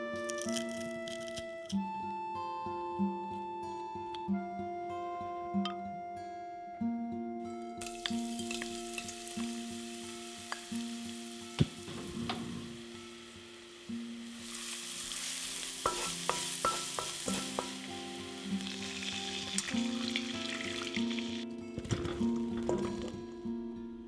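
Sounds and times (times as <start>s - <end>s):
garlic sizzling in oil: 7.8s - 21.4s
wooden spatula knocking pan: 15.8s - 17.9s.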